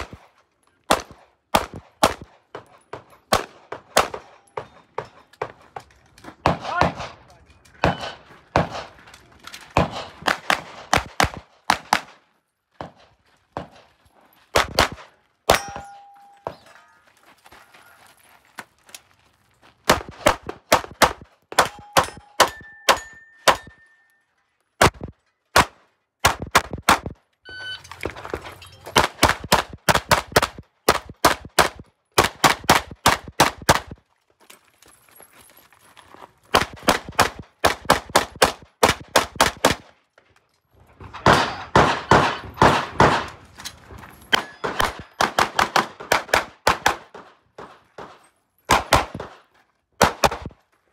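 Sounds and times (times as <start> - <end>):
rapid pistol shots: 0.9 - 2.4, 7.8 - 9.0, 9.8 - 12.2, 14.6 - 15.6, 24.8 - 27.2, 29.0 - 33.9, 36.5 - 39.9, 41.2 - 43.4, 44.4 - 49.4, 50.0 - 50.5
bullets ringing on steel targets: 15.5 - 17.2, 21.6 - 24.4, 44.1 - 45.4.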